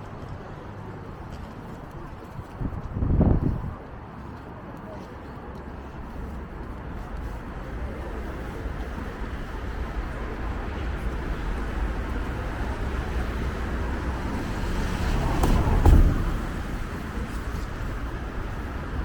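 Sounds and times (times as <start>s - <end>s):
city street traffic rumble: 0.0s - 19.0s
vehicle passing close: 8.0s - 19.0s.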